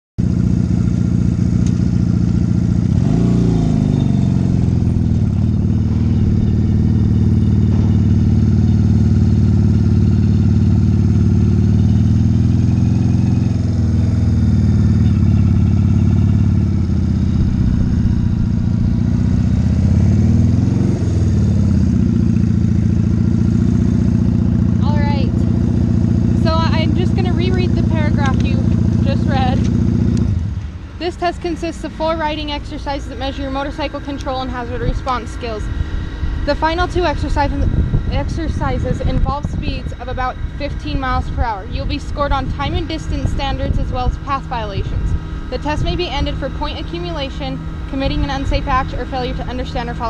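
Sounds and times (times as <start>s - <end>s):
motorcycle engine idling: 0.2s - 50.0s
motorcycle throttle blips: 0.2s - 50.0s.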